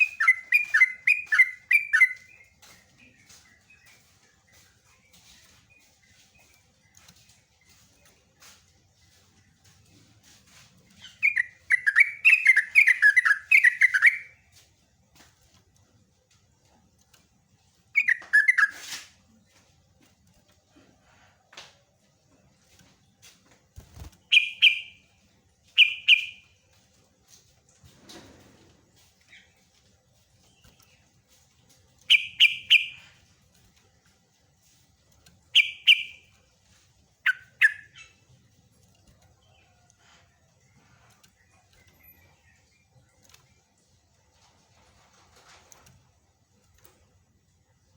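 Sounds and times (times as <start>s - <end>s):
faint bird chips: 0.0s - 14.6s, 17.9s - 19.6s, 23.9s - 25.0s, 25.8s - 26.5s, 29.2s - 33.6s, 35.5s - 36.5s, 37.2s - 38.4s
bird calling in sharp notes: 32.1s - 33.0s, 35.6s - 36.2s.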